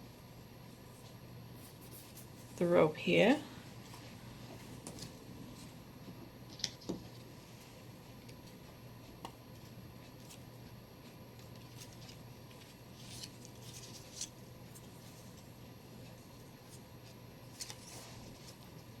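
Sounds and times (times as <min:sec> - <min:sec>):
paper and rope rustling: 0:11.4 - 0:15.5, 0:17.4 - 0:18.9.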